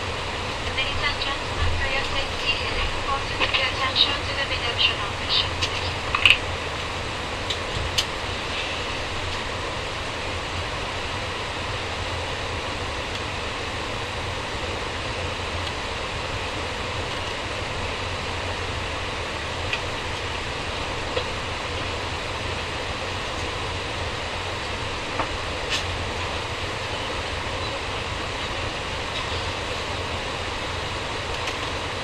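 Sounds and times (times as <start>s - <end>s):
airliner cabin air rush: 0.0s - 32.0s
low hum: 0.0s - 32.0s.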